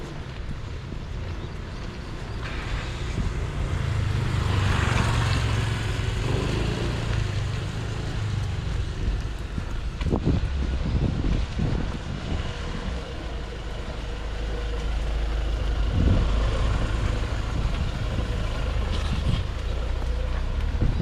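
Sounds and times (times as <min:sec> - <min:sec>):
car passing: 0:02.4 - 0:21.0.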